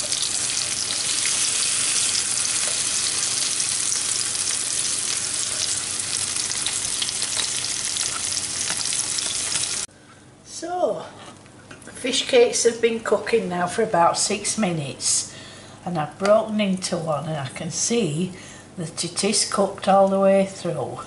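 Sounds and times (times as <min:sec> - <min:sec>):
food sizzling in frying pan: 0:00.0 - 0:09.9.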